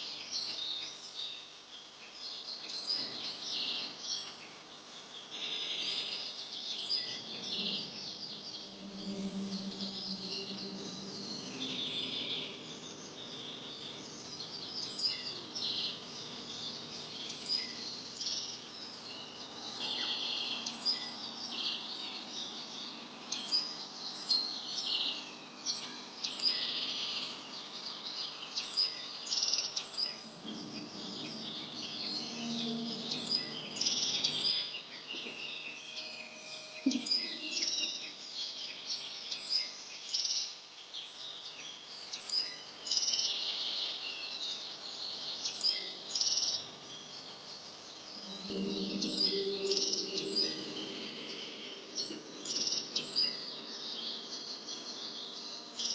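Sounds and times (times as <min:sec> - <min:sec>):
birds chirping: 0:02.6 - 0:40.4, 0:42.3 - 0:55.9
low drawn-out tone: 0:07.0 - 0:23.3, 0:30.1 - 0:38.0, 0:48.2 - 0:54.3.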